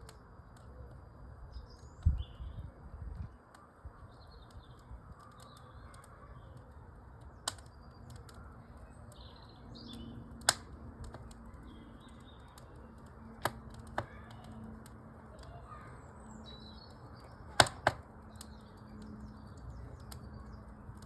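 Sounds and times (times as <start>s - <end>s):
fire popping: 0.0s - 21.0s
small birds chirping: 0.0s - 21.0s
wood fire rushing: 10.4s - 21.0s.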